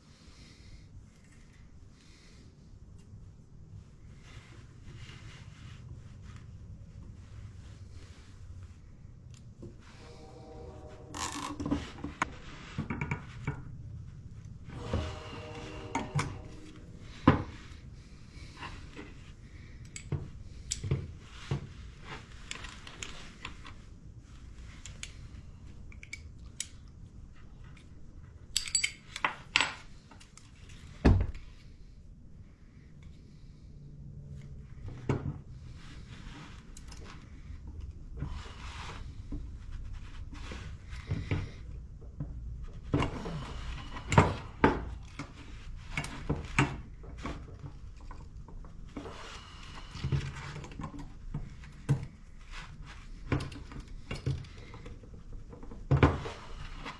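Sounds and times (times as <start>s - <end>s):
metal tools clinking: 28.6s - 29.2s.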